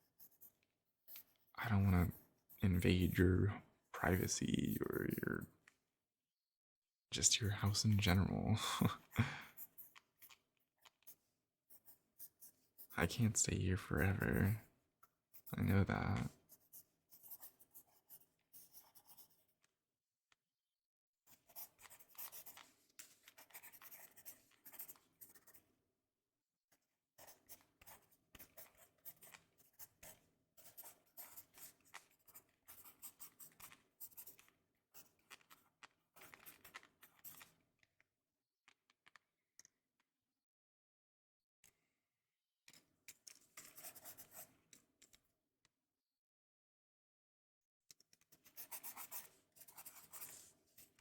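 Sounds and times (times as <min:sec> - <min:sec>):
pencil scribbling on paper: 0:00.0 - 0:03.2, 0:09.1 - 0:13.3, 0:15.3 - 0:19.5, 0:21.3 - 0:25.6, 0:27.2 - 0:35.2, 0:43.6 - 0:44.5, 0:48.4 - 0:51.0.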